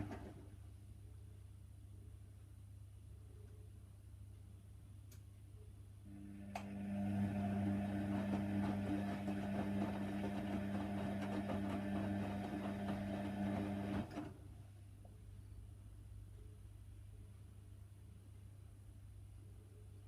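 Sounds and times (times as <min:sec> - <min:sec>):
washing machine motor humming: 0:00.0 - 0:00.4, 0:06.1 - 0:14.5.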